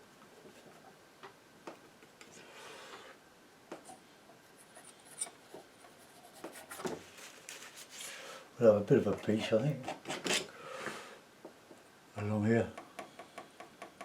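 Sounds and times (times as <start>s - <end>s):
painting knife scraping: 4.4s - 6.9s.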